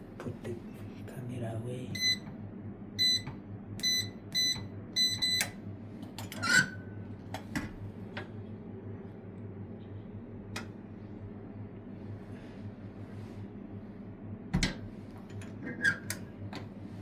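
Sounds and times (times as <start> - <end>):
keypad beeping: 3.0 - 5.6.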